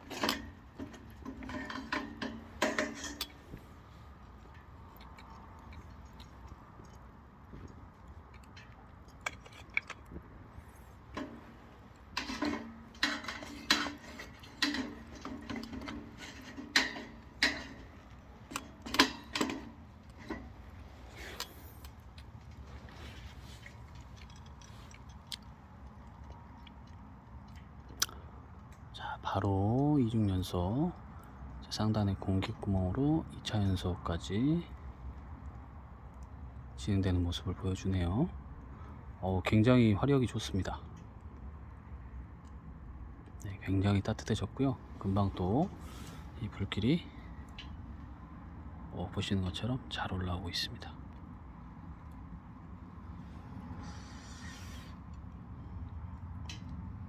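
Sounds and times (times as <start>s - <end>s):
firewood clattering in metal stove: 0.0s - 6.1s, 8.4s - 21.8s
low rumble of fire: 0.0s - 57.0s.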